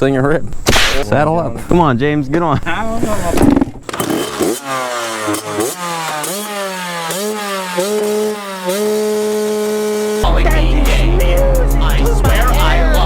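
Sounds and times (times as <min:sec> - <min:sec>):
dirt bike engine revving: 0:03.0 - 0:13.0.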